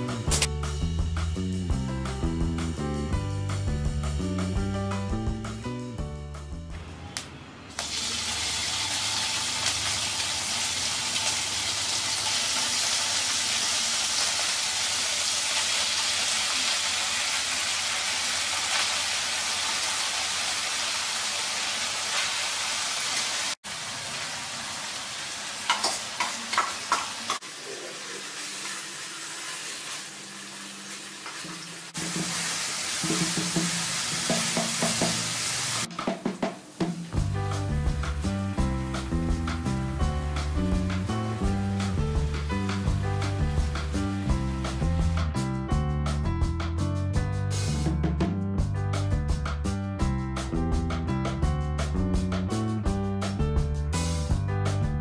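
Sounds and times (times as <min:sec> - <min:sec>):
cheese sizzling in hot oil: 0:07.8 - 0:35.9.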